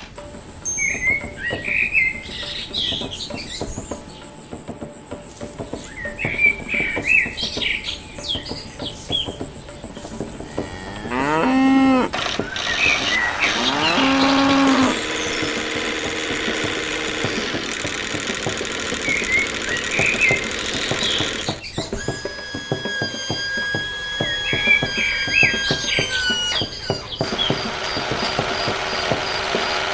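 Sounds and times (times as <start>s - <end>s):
bird chirps: 0.0s - 29.9s
cow mooing: 10.4s - 17.7s.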